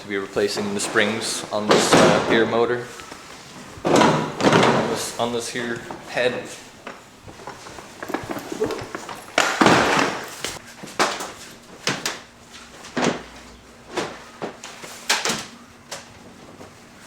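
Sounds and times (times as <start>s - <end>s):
tools knocking and clattering: 6.8s - 10.6s
sliding rattle: 7.3s - 10.6s.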